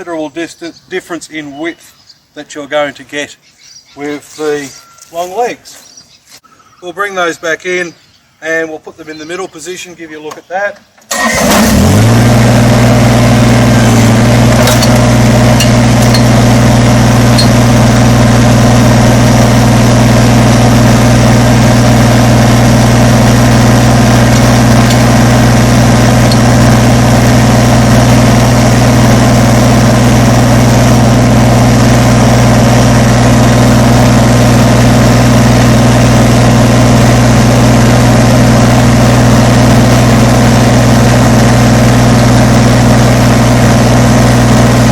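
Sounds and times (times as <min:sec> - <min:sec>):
diesel tractor engine running: 0:11.1 - 0:44.9.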